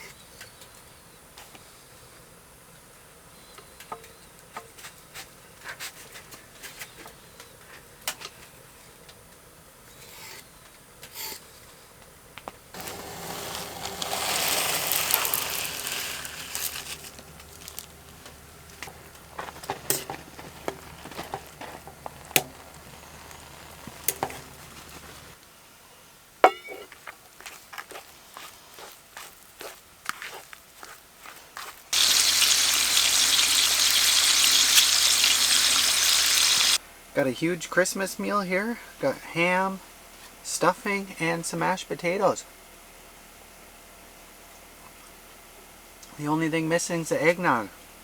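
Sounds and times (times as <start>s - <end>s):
camp cooking gear clicks and knocks: 12.8s - 25.4s
loud hiss: 12.8s - 25.4s, 32.0s - 36.8s
low steady hum: 15.1s - 25.4s.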